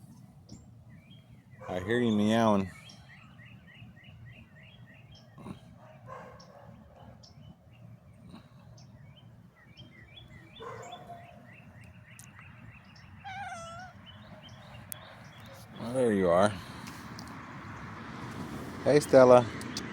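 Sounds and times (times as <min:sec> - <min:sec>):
outdoor background noise: 0:00.0 - 0:19.9
small bird chirping: 0:08.3 - 0:16.0
cat meowing: 0:13.2 - 0:14.0.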